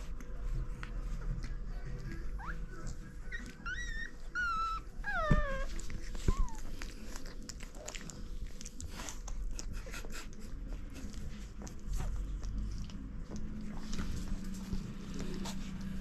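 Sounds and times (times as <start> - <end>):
puppies whining and yelping: 2.1 - 8.0.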